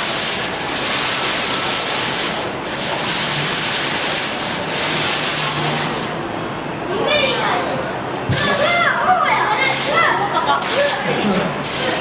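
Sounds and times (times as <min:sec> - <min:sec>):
water falling hiss: 0:00.0 - 0:06.3, 0:09.6 - 0:12.0.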